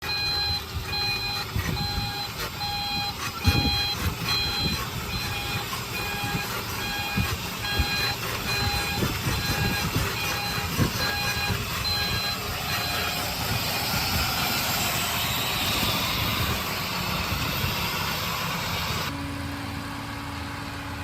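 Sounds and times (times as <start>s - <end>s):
reversing alarm beeping: 0.0s - 19.1s
diesel engine rumble: 0.0s - 21.0s.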